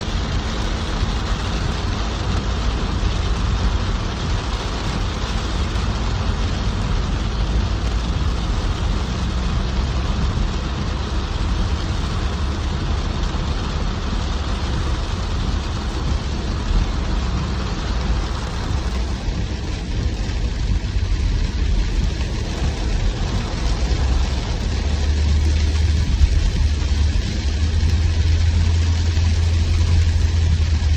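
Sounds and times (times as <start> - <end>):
deep rumble: 0.0 - 30.9
heavy rain: 0.0 - 30.9.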